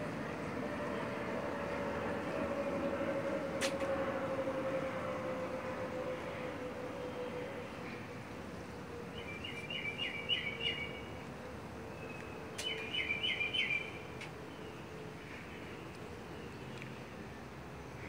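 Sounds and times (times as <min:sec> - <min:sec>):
bird chirping: 0:09.1 - 0:11.2, 0:11.9 - 0:14.9.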